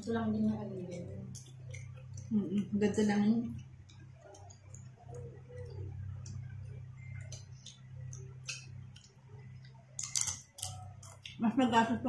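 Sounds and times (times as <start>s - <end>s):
steady low hum: 0.0s - 12.0s
chips crunching: 10.0s - 11.3s.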